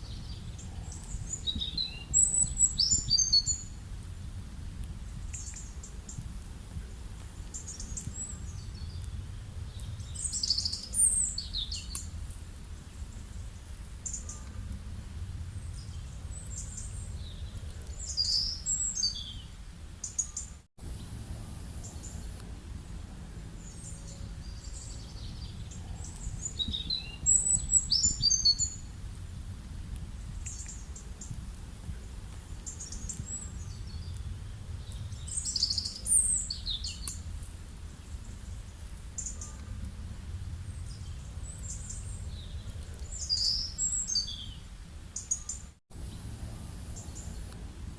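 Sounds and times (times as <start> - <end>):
wild birds chirping and singing: 0.0 - 3.8, 7.3 - 12.1, 15.4 - 28.9, 32.4 - 37.2, 37.9 - 47.6
low background rumble: 0.0 - 20.1, 20.8 - 45.2, 45.9 - 47.9.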